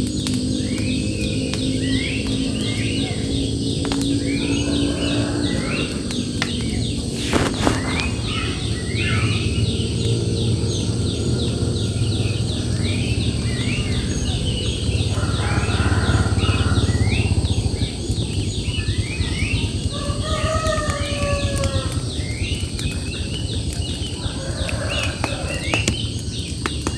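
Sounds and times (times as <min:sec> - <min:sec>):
bird singing phrase: 0:00.0 - 0:26.9
steady low rumble: 0:00.0 - 0:26.9
high bird chirps: 0:02.8 - 0:10.9.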